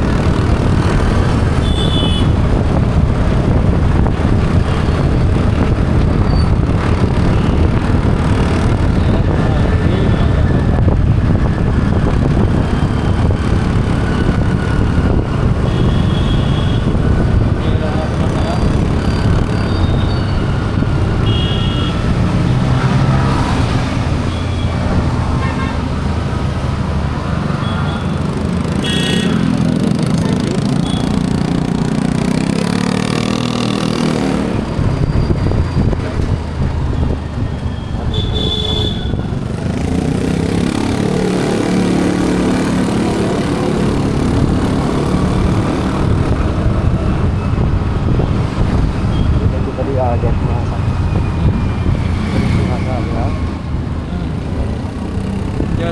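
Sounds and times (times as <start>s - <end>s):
vehicle engines running: 0.0s - 55.9s
car horns tooting: 1.6s - 2.4s, 15.6s - 17.0s, 21.2s - 22.1s, 25.4s - 25.9s, 27.6s - 29.6s, 37.8s - 39.4s.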